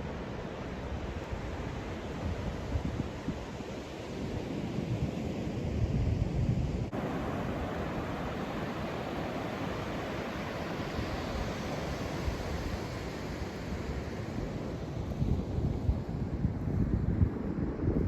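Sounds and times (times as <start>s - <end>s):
wind buffeting microphone: 4.2s - 18.0s
surf breaking on beach: 6.9s - 15.1s.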